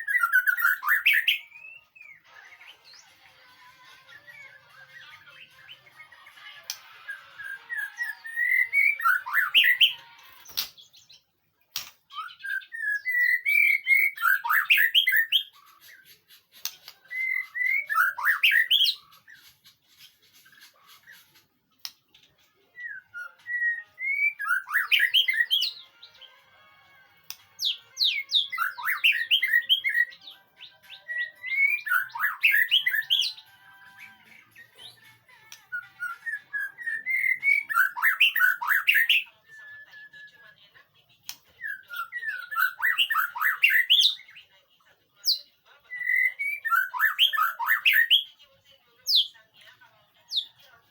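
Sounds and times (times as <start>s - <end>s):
bird singing whistles: 0.0s - 2.2s, 7.1s - 10.7s, 12.1s - 15.5s, 17.0s - 19.1s, 22.8s - 25.8s, 27.6s - 33.4s, 35.7s - 40.5s, 41.6s - 44.2s, 46.0s - 48.3s.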